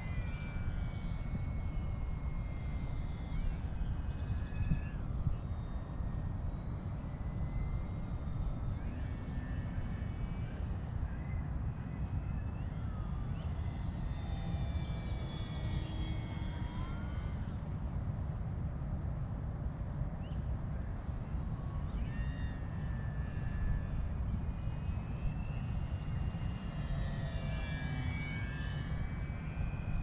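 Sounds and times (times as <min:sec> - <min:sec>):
wind rumble on microphone: 0:00.0 - 0:09.0
high whine of electric motor: 0:00.0 - 0:30.0.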